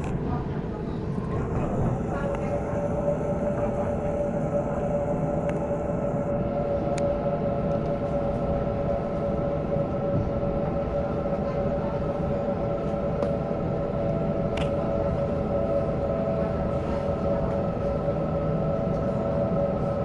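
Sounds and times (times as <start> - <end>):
train rumble and hum: 0.0 - 20.0.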